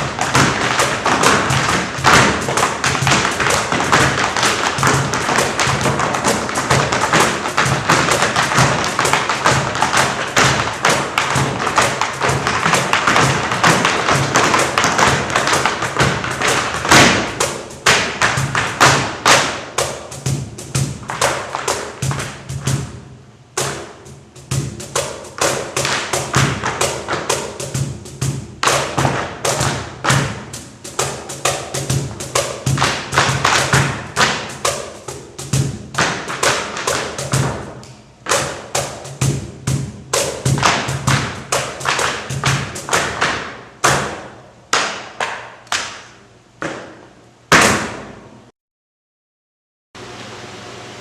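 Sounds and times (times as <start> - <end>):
tap shoes on wooden stage: 0.0 - 23.0, 23.6 - 48.2.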